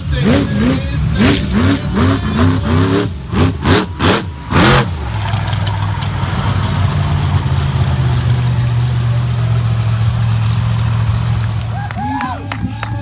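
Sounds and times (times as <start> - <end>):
monster truck engine revving: 0.0 - 12.6
engine idling: 0.0 - 13.0.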